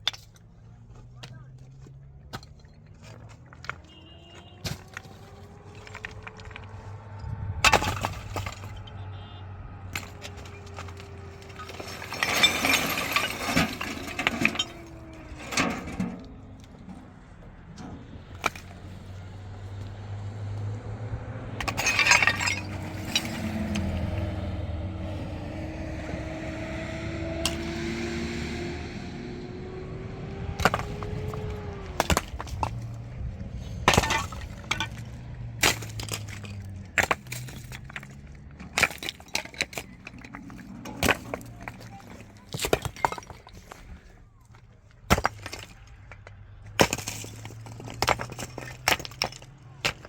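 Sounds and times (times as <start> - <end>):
tractor engine running: 0.0 - 50.0
loud crashing and clattering: 7.6 - 9.0, 9.9 - 19.0, 21.6 - 24.5, 30.5 - 43.9, 45.1 - 50.0.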